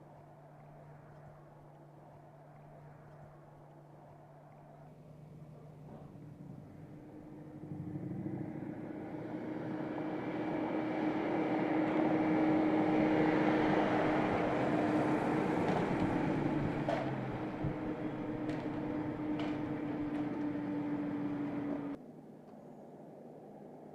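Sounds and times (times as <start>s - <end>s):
steady low hum: 0.0s - 23.8s
car engine and road noise: 5.2s - 22.0s.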